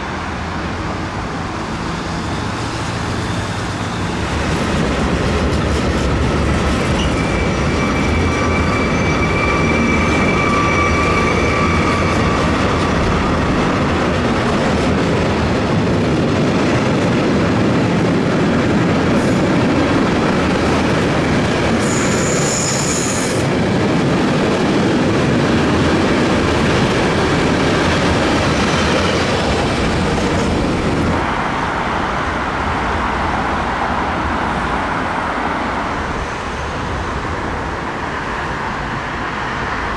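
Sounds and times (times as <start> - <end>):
train wheels rumbling on rails: 0.0 - 39.9
wheels squealing on rail: 2.2 - 14.2, 19.1 - 24.0.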